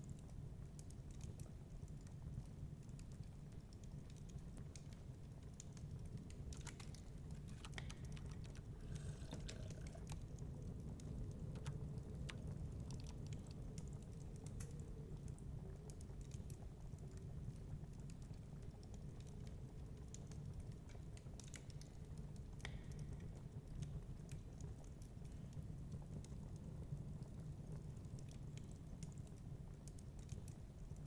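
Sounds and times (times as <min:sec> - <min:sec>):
fire crackling and popping: 0:00.0 - 0:31.0
steady low rumble: 0:07.3 - 0:10.8.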